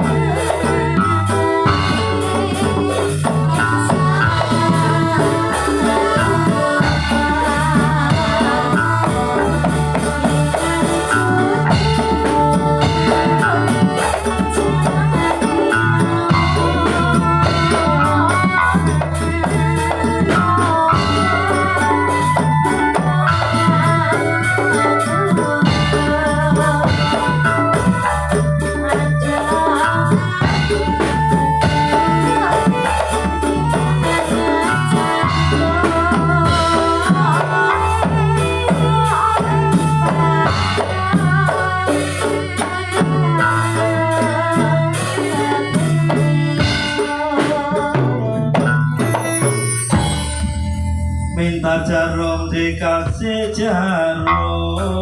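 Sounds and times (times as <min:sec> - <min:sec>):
drums and rattling percussion: 0:00.0 - 0:55.0
pitch-bending melody line: 0:00.0 - 0:55.0
low bass: 0:50.0 - 0:55.0
sustained melody notes: 0:54.0 - 0:55.0.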